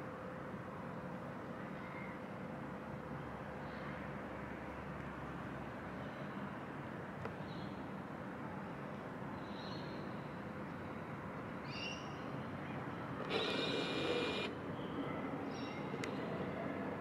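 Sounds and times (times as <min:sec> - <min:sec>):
distant traffic hum: 0:00.0 - 0:17.0
drawn-out bird call: 0:13.2 - 0:14.6.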